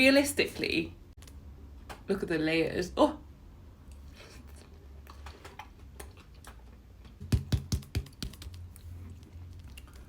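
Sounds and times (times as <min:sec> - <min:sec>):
utensil knocking on frozen cake: 0:07.2 - 0:08.4.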